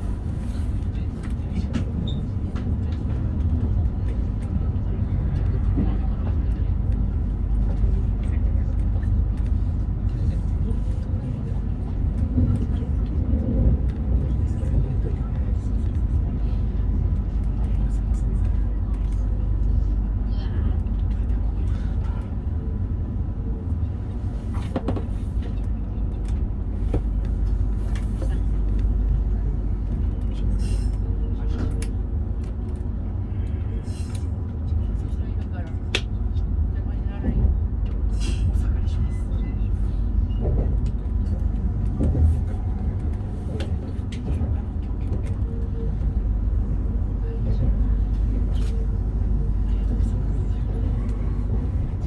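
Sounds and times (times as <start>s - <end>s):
train rumbling at speed: 0.0s - 52.0s.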